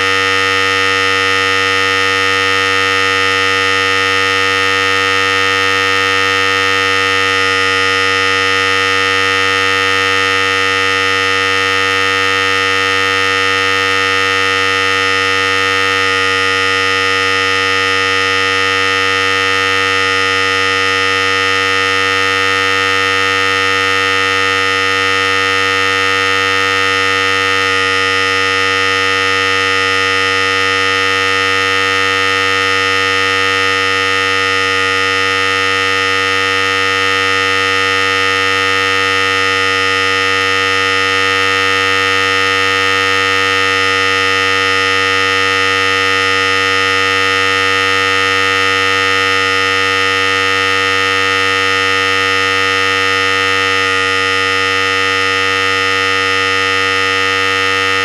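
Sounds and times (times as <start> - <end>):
electric hair clipper buzzing: 55.9 - 58.0.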